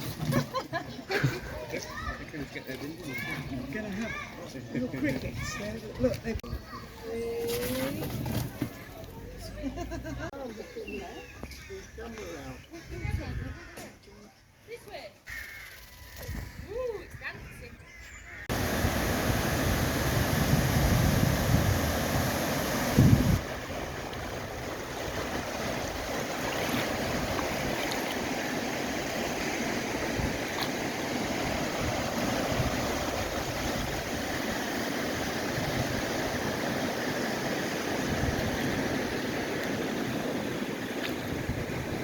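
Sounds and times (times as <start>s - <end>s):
wind buffeting microphone: 12.8s - 13.7s, 18.5s - 42.0s
rushing water: 18.5s - 42.0s.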